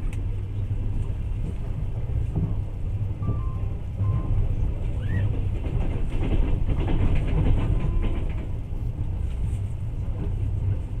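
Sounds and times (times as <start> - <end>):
train rumbling and rattling: 0.0 - 11.0.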